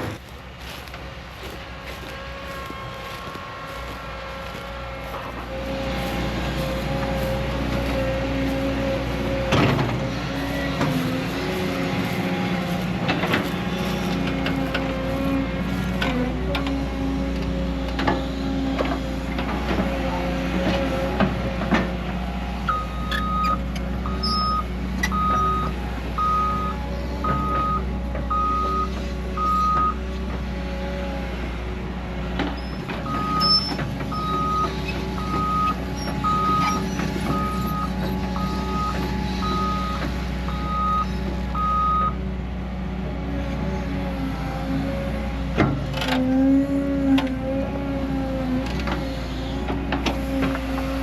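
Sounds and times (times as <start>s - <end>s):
heavy machine engine running: 0.0s - 51.0s
reversing alarm beeping: 22.7s - 30.0s, 33.0s - 42.2s.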